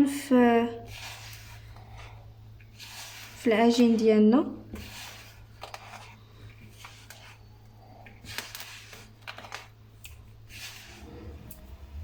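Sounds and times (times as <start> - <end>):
hands kneading dough: 0.0 - 11.7.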